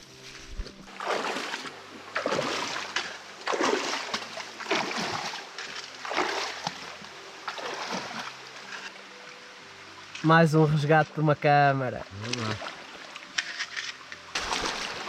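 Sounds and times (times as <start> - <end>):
wading through shallow water: 0.0 - 9.2, 14.3 - 15.0.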